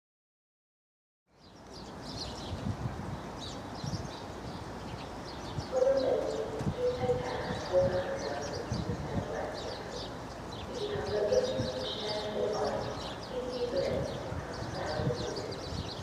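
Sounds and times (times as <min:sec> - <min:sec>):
small birds chirping: 0:01.4 - 0:16.0.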